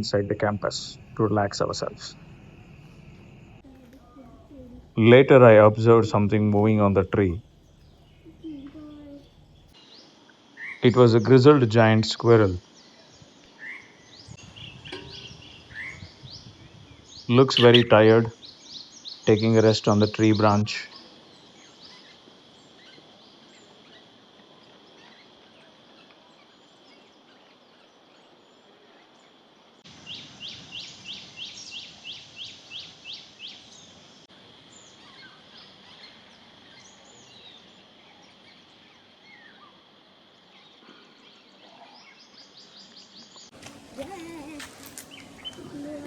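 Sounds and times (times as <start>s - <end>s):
high-pitched hiss: 0.0s - 25.3s
faint bird chirps: 0.0s - 34.1s, 34.7s - 46.0s.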